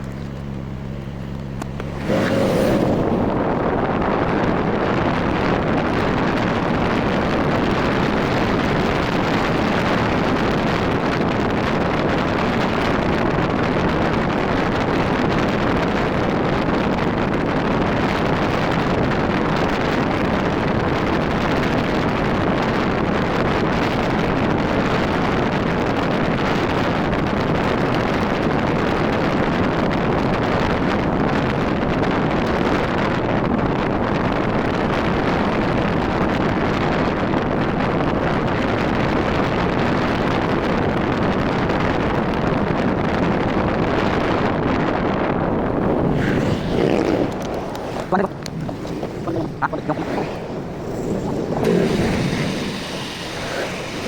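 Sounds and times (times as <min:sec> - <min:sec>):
motorcycle engine: 0:00.0 - 0:15.9, 0:45.1 - 0:54.0
road noise: 0:00.0 - 0:54.0
wind rushing over microphone: 0:00.0 - 0:54.0.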